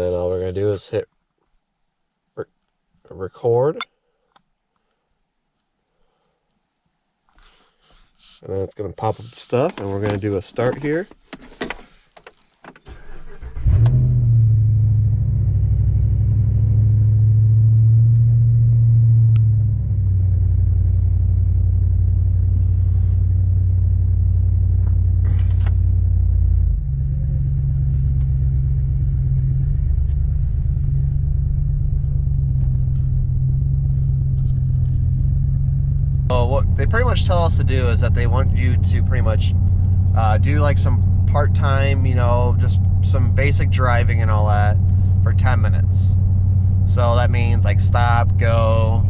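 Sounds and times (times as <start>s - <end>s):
engine cranking: 12.6s - 14.0s
engine idling: 19.2s - 49.0s.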